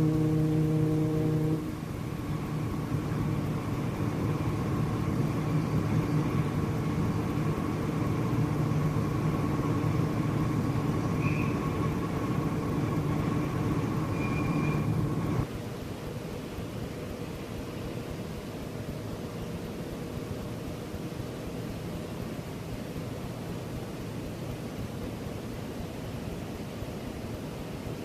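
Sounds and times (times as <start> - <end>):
deep horn-like tone: 0.0 - 1.8
low mechanical rumble: 0.0 - 26.6
faint hum: 0.0 - 28.0.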